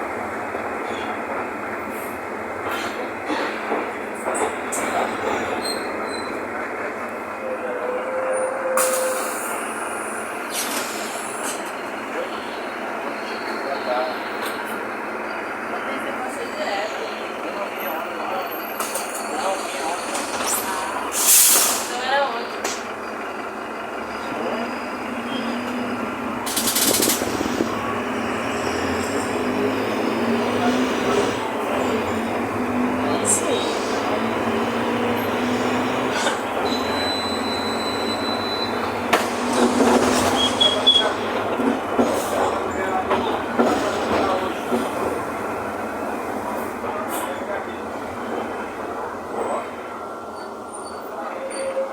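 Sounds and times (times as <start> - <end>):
bus engine and road rumble: 0.0 - 51.8
compressed air hiss: 20.4 - 22.0
body and road rattle: 25.4 - 36.8, 38.7 - 47.6
faint squeal: 36.2 - 39.0, 50.4 - 51.9.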